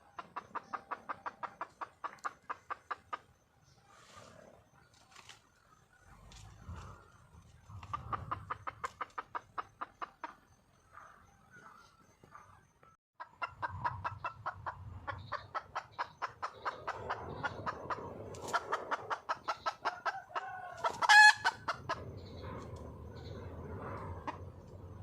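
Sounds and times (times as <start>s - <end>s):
hen clucking: 0.0s - 3.8s, 6.0s - 12.5s, 13.2s - 22.4s.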